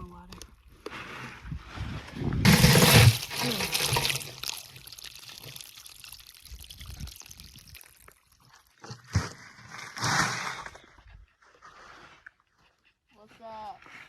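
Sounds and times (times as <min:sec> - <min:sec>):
water pouring and trickling: 0:02.4 - 0:09.0.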